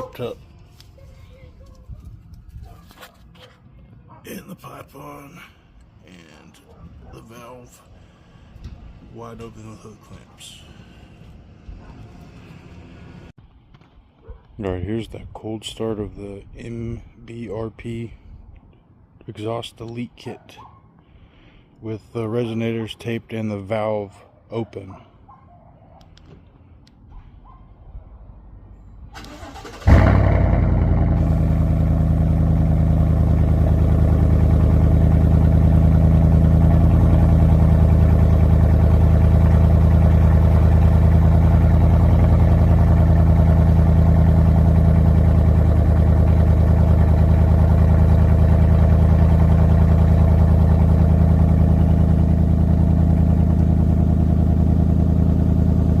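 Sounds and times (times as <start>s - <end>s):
engine starting and idling: 29.1s - 56.0s.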